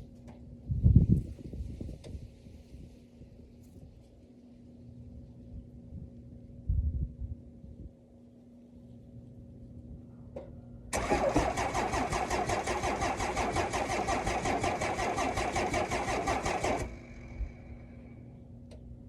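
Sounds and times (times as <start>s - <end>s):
diesel engine cranking: 10.9s - 17.9s.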